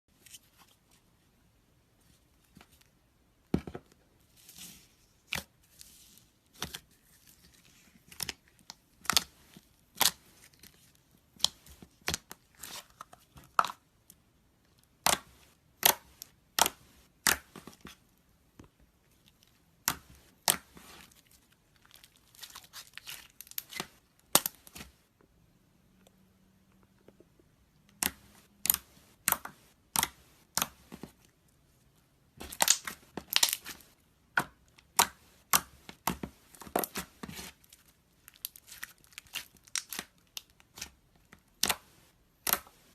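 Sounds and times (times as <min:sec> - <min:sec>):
slime popping and crackling: 0:32.4 - 0:33.9, 0:38.3 - 0:40.9.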